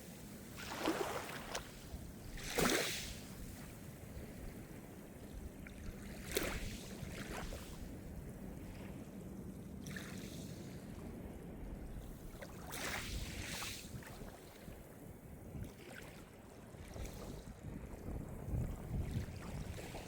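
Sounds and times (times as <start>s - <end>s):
small waves breaking on shore: 0.0s - 9.0s, 9.8s - 11.3s, 12.2s - 15.0s, 15.6s - 20.0s
wave splashes: 0.5s - 3.7s.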